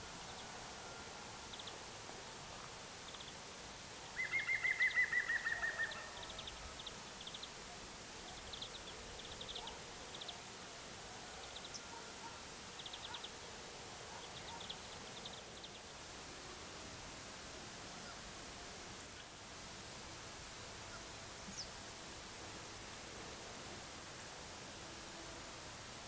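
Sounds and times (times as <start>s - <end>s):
songbird trill: 4.1s - 10.5s, 11.4s - 13.4s, 14.1s - 16.0s, 20.9s - 21.8s.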